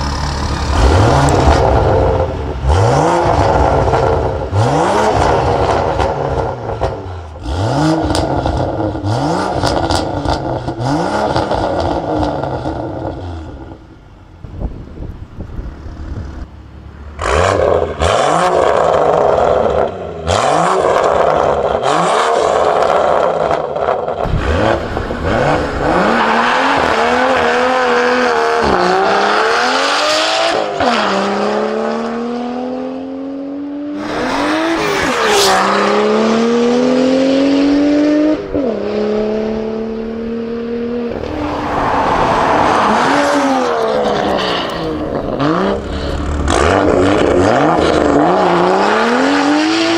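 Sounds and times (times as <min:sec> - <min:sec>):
car engine accelerating: 0:00.0 - 0:14.2, 0:24.2 - 0:49.9.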